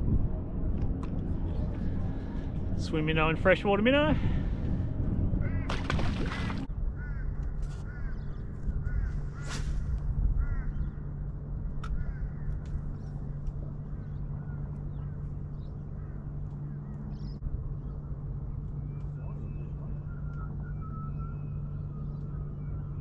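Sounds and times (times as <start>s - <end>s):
low hum and rumble: 0.0s - 23.0s
birds calling: 5.4s - 9.6s, 10.4s - 11.1s, 11.8s - 13.2s.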